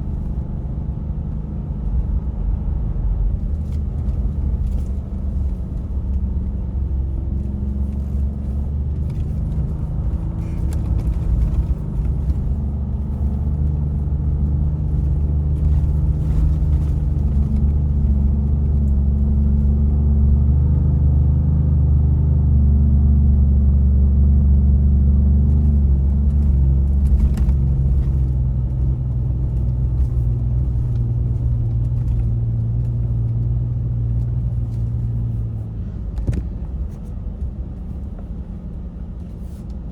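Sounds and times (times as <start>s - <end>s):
truck engine rumbling: 0.0s - 39.9s.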